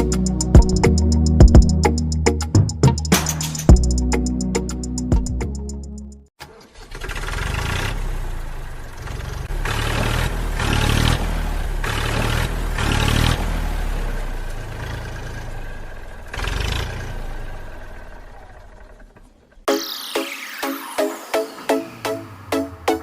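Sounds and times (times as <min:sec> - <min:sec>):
small engine revving: 0:06.4 - 0:19.7.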